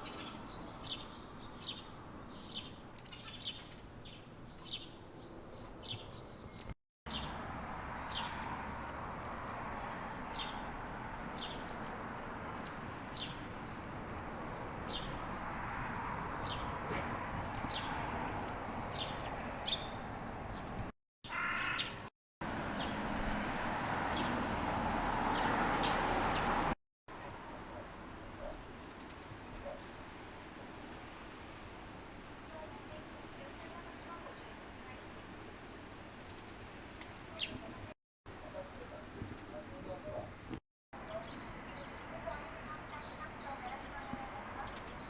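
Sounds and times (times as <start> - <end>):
small birds chirping: 0.0 - 16.8, 17.4 - 22.1, 25.3 - 26.6, 32.5 - 45.0
crow cawing: 21.3 - 22.0.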